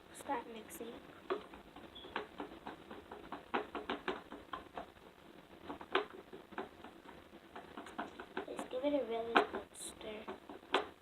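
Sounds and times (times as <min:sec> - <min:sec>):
utensil tapping container: 0:05.7 - 0:10.9.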